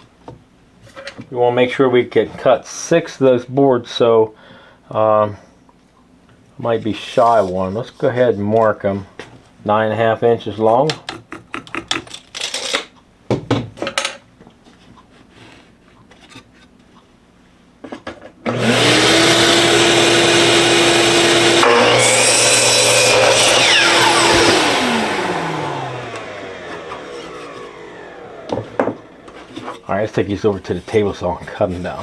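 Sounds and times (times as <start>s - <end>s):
electric miter saw cutting wood: 18.5s - 29.8s.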